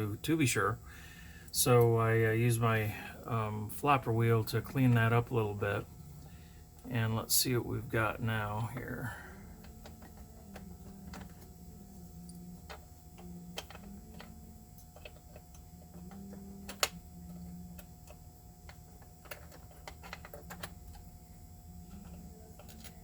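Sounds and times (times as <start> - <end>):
low steady hum: 0.0 - 23.0
small metal parts clicking: 9.6 - 11.5, 12.2 - 21.1, 21.8 - 23.0.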